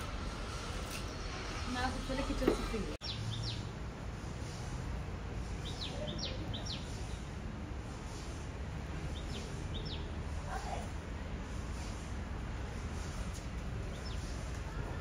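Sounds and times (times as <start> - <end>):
birds chirping: 1.0 - 4.6, 5.4 - 10.9, 13.8 - 15.0.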